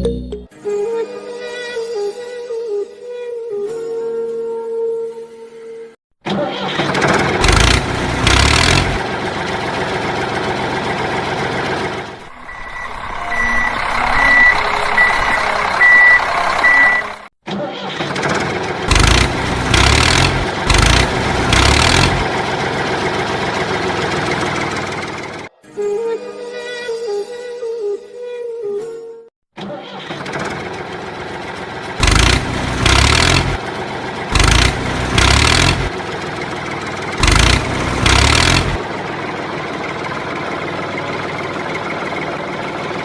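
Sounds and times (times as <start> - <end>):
vehicle engine surging: 6.8 - 17.3, 18.3 - 25.5, 30.3 - 43.0
reversing beeper: 12.2 - 17.3.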